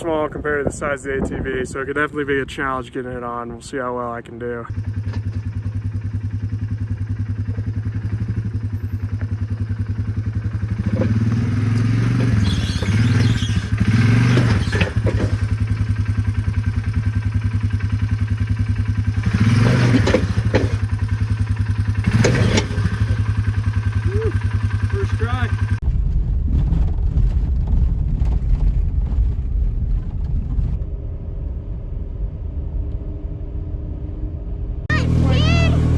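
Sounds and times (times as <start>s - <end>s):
atv engine revving: 4.7s - 25.8s, 34.9s - 35.9s
knocks and clatter: 10.7s - 15.9s, 19.4s - 21.3s, 22.0s - 23.3s, 25.8s - 30.8s.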